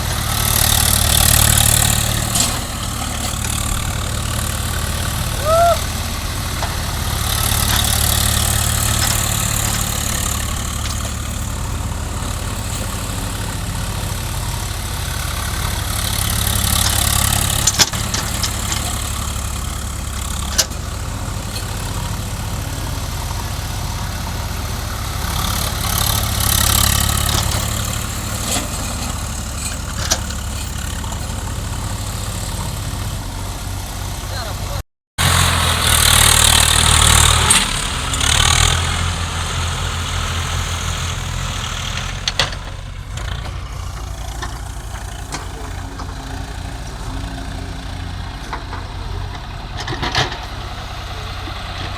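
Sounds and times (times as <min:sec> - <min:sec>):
heavy machinery diesel engine: 0:00.0 - 0:51.9.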